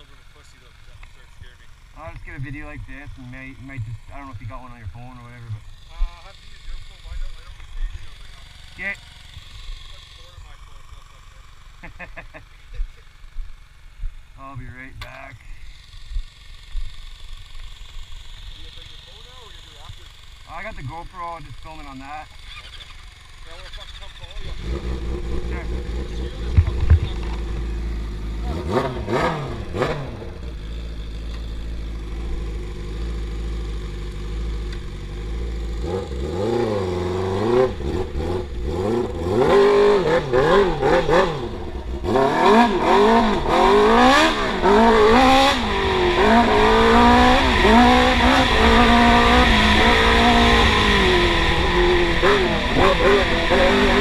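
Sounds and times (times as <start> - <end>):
quad engine revving: 0.0 - 54.0.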